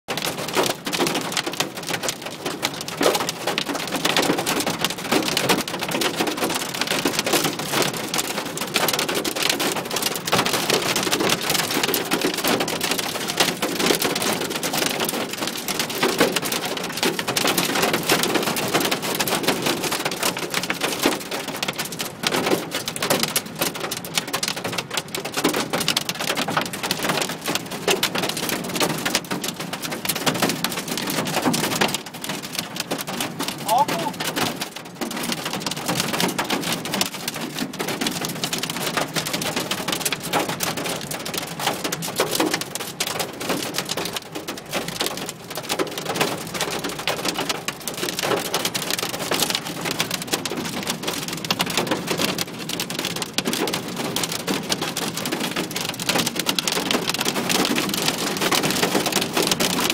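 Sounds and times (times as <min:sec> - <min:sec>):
rain pattering on car windscreen: 0:00.1 - 0:59.9.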